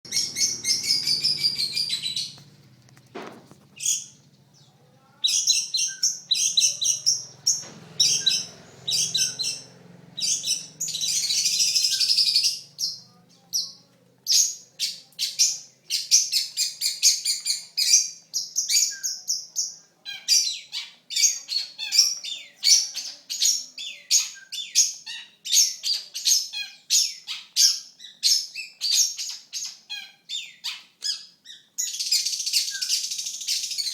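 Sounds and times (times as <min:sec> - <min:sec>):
shrike chattering song: 0:00.1 - 0:02.5.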